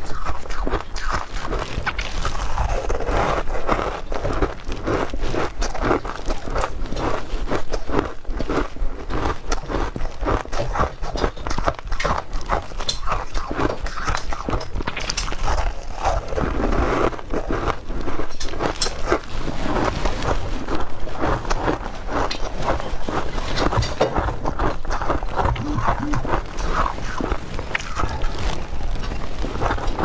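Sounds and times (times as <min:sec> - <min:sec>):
chewing ice crunches: 0:00.0 - 0:30.0.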